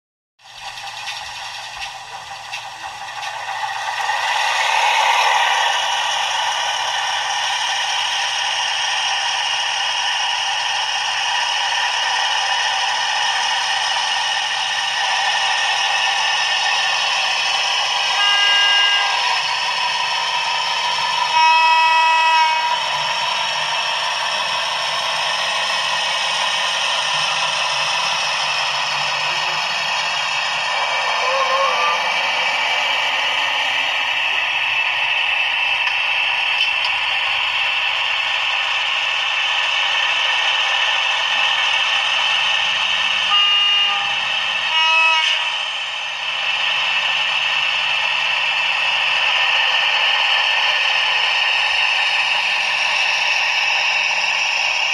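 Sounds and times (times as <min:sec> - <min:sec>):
diesel locomotive engine running: 0:00.4 - 0:54.9
short horn blasts: 0:18.2 - 0:19.2, 0:21.2 - 0:22.8, 0:43.3 - 0:45.5.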